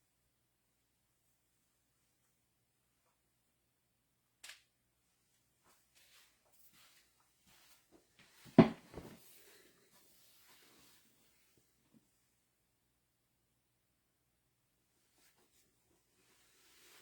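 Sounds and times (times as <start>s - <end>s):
loud thump: 8.6s - 9.1s
small knock: 8.6s - 9.2s.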